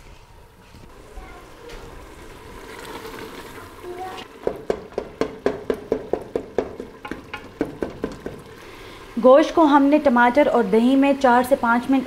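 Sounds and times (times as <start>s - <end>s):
curry sizzling in pot: 0.9s - 12.0s
wooden spoon knocking on pot: 4.4s - 8.5s.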